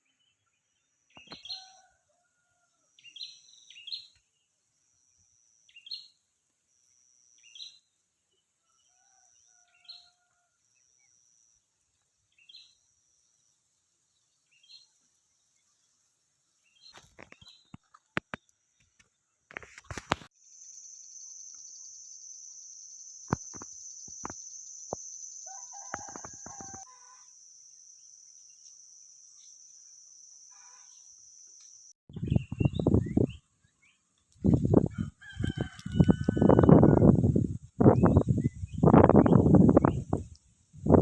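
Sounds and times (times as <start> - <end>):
rooster crowing: 1.5 - 3.0, 8.6 - 10.6, 25.5 - 27.3, 34.8 - 37.2
high-pitched insect buzz: 19.8 - 32.0.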